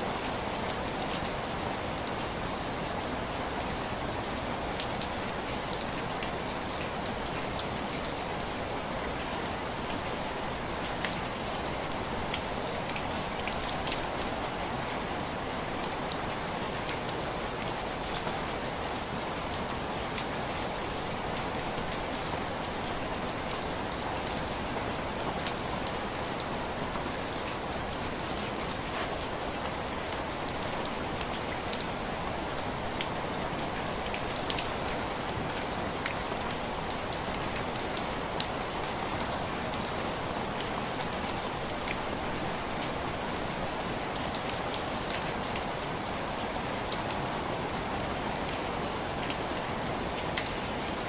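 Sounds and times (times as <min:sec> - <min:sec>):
rain on window glass: 0:00.0 - 0:51.0.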